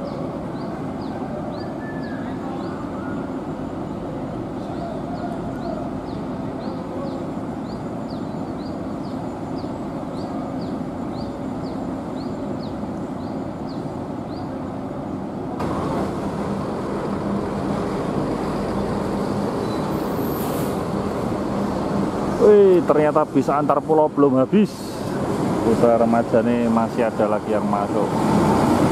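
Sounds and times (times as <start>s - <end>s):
bus diesel engine running: 0.0s - 28.9s
air brake hiss: 20.0s - 20.9s
heavy rain hissing: 24.6s - 25.8s.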